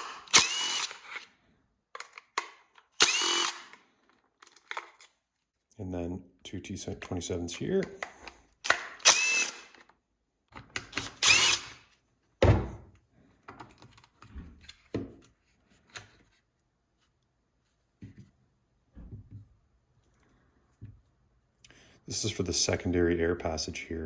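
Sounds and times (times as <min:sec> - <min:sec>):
power driver running: 0:00.0 - 0:01.2, 0:03.0 - 0:03.7.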